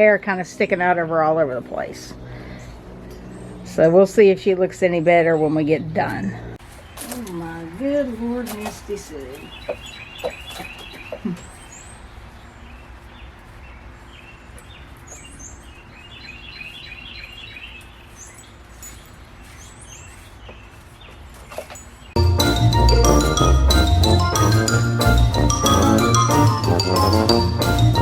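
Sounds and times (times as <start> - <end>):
outdoor background noise: 0.0 - 23.3
songbirds chirping: 0.0 - 23.3
loud music: 22.2 - 28.0.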